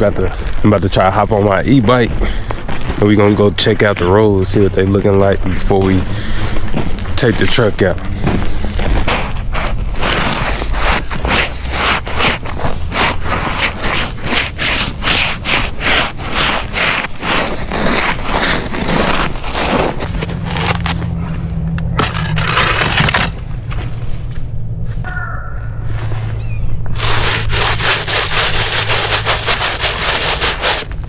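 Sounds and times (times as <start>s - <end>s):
scraping and rubbing: 0.0s - 24.2s, 25.8s - 31.0s
footsteps crunching on ice: 0.0s - 24.4s, 26.9s - 31.0s.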